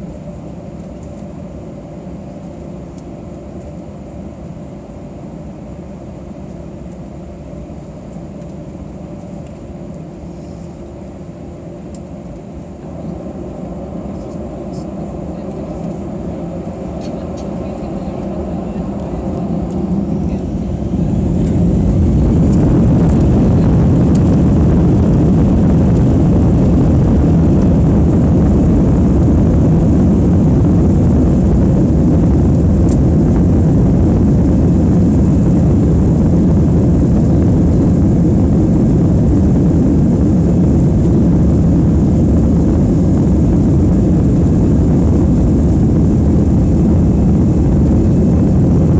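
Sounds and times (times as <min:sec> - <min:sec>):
jet engines spooling up: 0:10.2 - 0:48.9.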